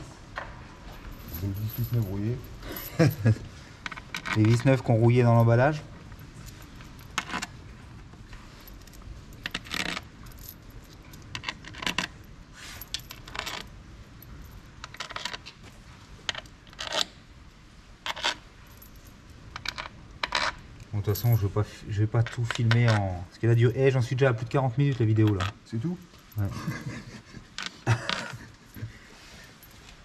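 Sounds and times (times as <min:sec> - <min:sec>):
small metal screws clinking: 0:01.1 - 0:05.5, 0:08.6 - 0:15.5, 0:18.0 - 0:23.1.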